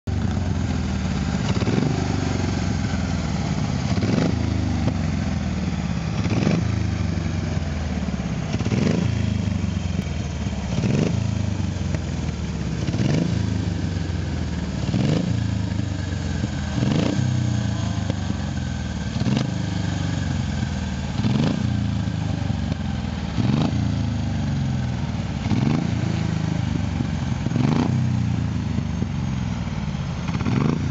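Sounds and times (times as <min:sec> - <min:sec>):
racing car engines running hard: 0:00.1 - 0:30.9.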